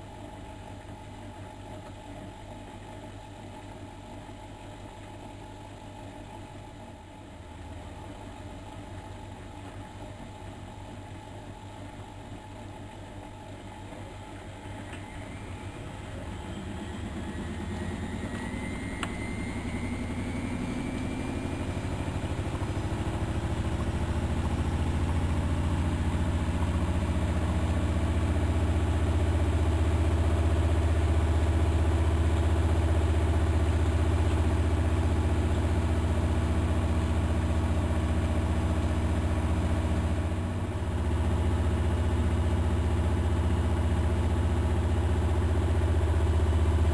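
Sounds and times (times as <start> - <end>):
washing machine spinning: 0.0 - 46.9
motor whine: 14.0 - 29.2.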